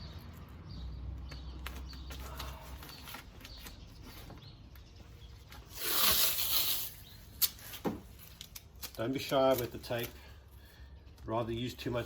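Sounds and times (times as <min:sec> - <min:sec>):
tape clicks and crinkles: 0:01.3 - 0:10.4.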